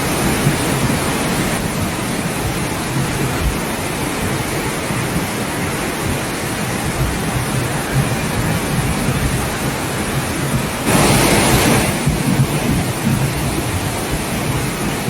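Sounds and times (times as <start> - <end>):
rushing flood water with deep rumble: 0.0 - 15.0.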